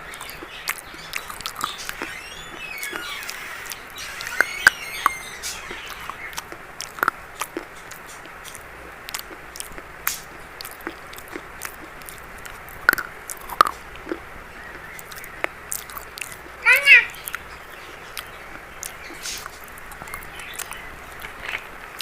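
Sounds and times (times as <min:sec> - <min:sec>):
crunching while chewing: 0:00.0 - 0:22.0.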